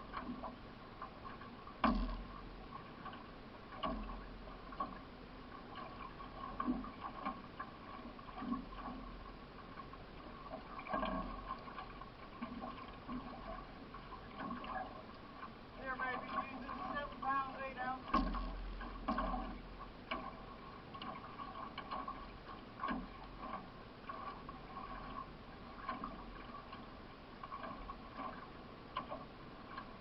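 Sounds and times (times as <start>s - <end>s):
canoe paddle splashing: 0.0s - 30.0s
water washing along hull: 0.0s - 30.0s.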